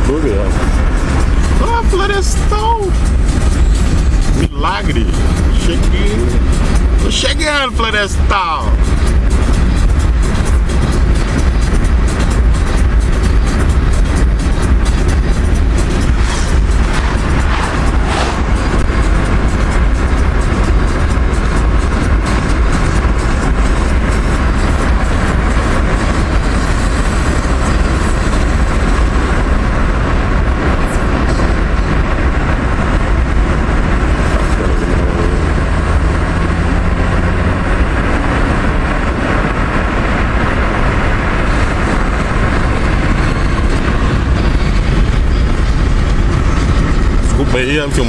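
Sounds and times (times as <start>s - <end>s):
car road and engine rumble: 0.0s - 48.0s.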